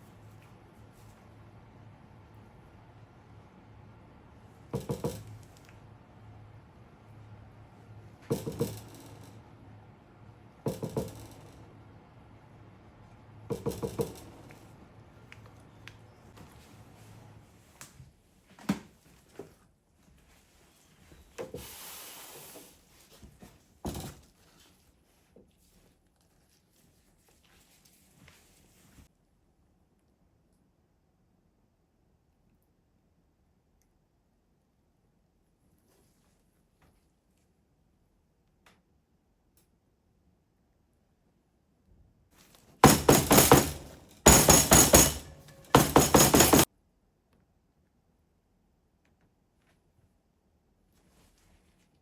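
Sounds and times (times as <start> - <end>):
hard objects clinking and knocking: 8.2 - 9.7, 10.6 - 11.9, 13.5 - 14.6, 42.8 - 46.7
hiss: 21.6 - 22.7.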